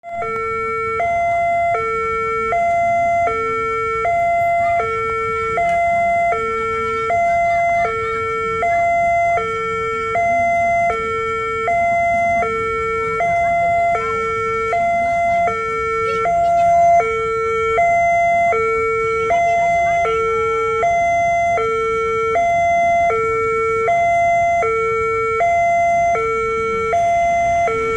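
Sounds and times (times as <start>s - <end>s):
two-tone level crossing alarm: 0.0s - 27.9s.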